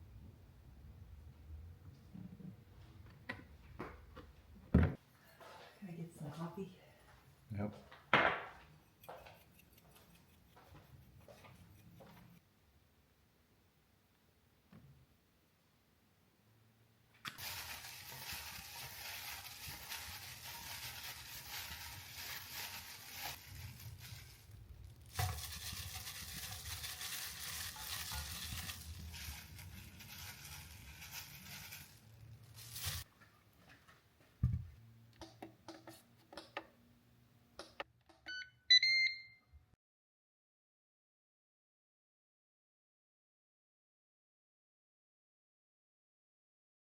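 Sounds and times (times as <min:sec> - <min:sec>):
air fryer electronic beeps: 0:38.3 - 0:39.4.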